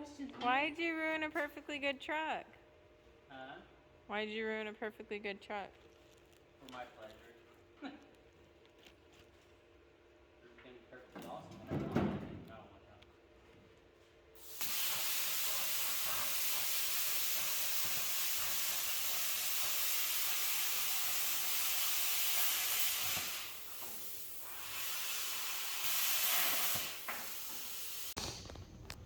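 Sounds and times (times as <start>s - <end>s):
compressed air hissing: 14.4s - 28.8s.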